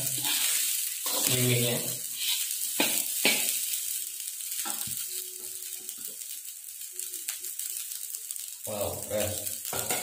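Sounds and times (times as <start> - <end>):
metal spatula scraping a wok: 0.0 - 3.6
rice sizzling in a wok: 0.0 - 10.0.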